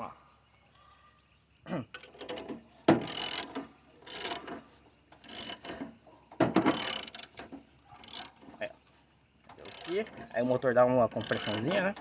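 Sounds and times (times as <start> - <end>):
ratchet wrench clicking: 2.0 - 4.5, 5.2 - 5.7, 6.7 - 8.4, 9.5 - 10.1, 11.2 - 12.0.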